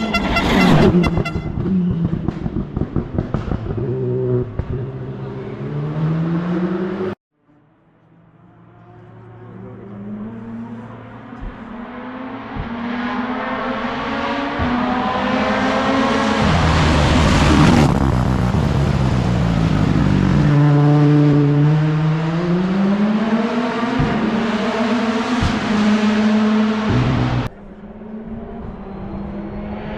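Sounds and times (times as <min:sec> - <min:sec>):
rally car engine passing: 0:00.0 - 0:29.9.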